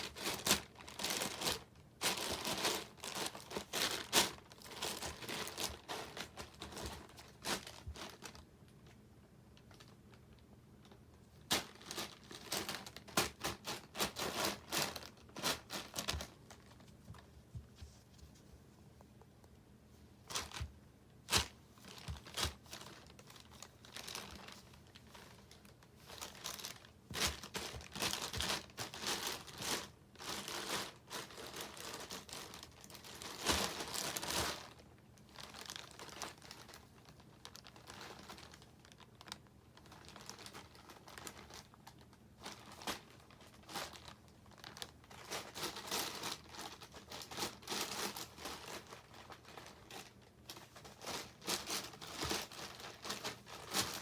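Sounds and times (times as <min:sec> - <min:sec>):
crinkly wrapper rustling: 0:00.0 - 0:17.6, 0:20.3 - 0:54.0.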